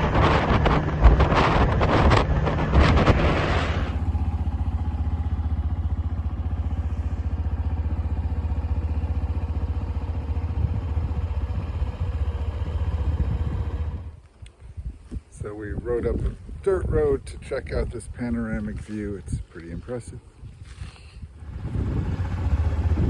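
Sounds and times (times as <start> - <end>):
wind buffeting microphone: 0.0 - 23.0
motorbike engine idling: 3.8 - 14.4, 20.7 - 23.0.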